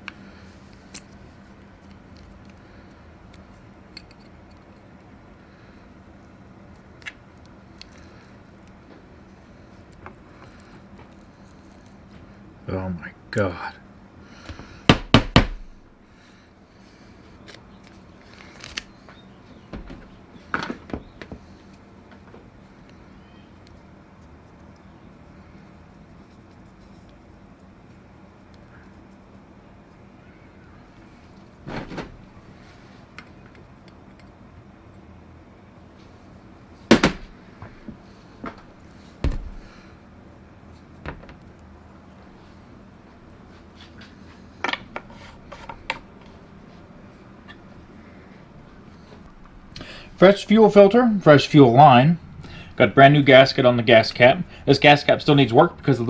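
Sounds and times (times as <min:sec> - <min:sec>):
tools knocking and clunking: 0:14.9 - 0:15.8, 0:19.7 - 0:21.4, 0:36.9 - 0:39.8
low thud: 0:36.9 - 0:37.4.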